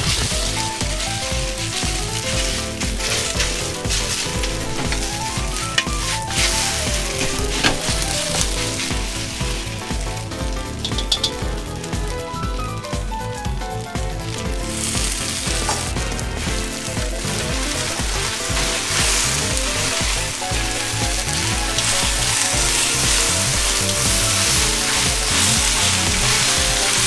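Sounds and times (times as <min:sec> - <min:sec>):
food sizzling in a wok: 0:00.0 - 0:27.0.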